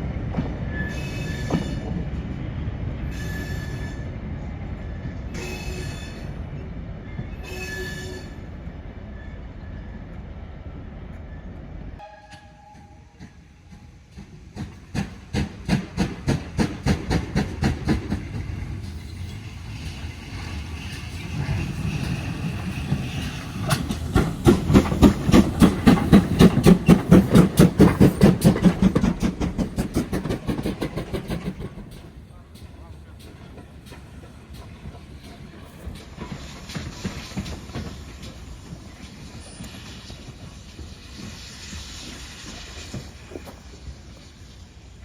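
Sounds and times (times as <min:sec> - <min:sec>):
train rumbling: 0:00.0 - 0:45.0
train rhythmic beat: 0:12.0 - 0:19.0, 0:21.2 - 0:38.9.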